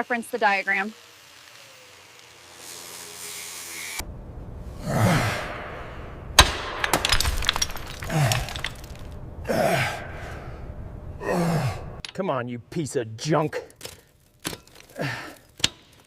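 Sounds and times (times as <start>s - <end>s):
person grunting with effort: 4.8s - 5.9s, 8.0s - 8.7s, 9.4s - 10.5s, 11.2s - 12.0s, 14.9s - 15.4s.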